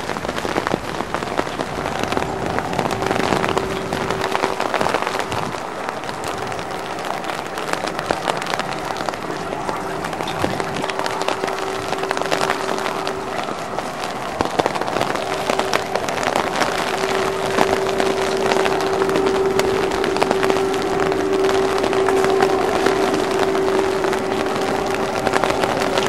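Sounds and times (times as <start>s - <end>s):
steady hum: 0.0s - 26.0s
wet snow pattering: 0.0s - 26.0s.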